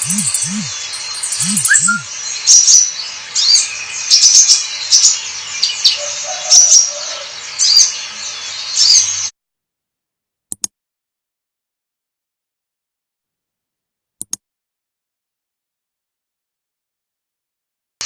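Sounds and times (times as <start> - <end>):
bird twittering and chirping: 0.0 - 9.3.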